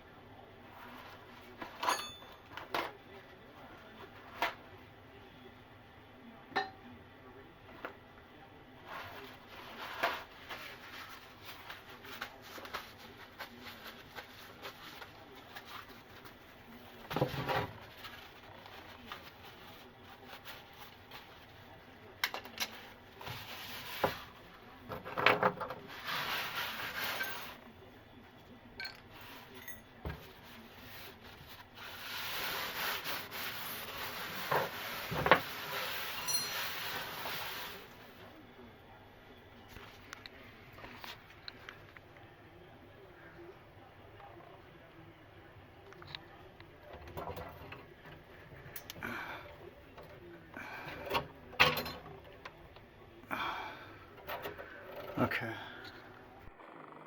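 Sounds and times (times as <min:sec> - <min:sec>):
scraping and rubbing: 0:08.8 - 0:16.4, 0:25.7 - 0:27.6, 0:30.2 - 0:38.2.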